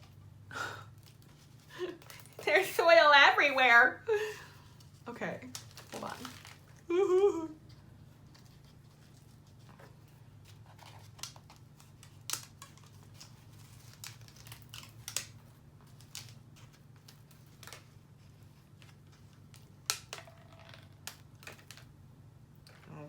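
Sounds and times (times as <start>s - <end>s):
packaging rustling: 0.9s - 2.9s, 4.8s - 6.8s, 8.1s - 22.0s.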